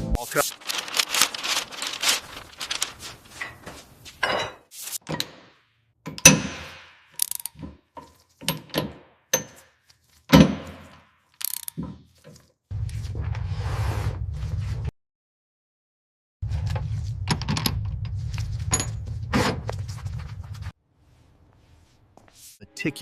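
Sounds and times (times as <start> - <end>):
mechanical clicks and clanks: 7.2 - 7.6, 11.4 - 11.8.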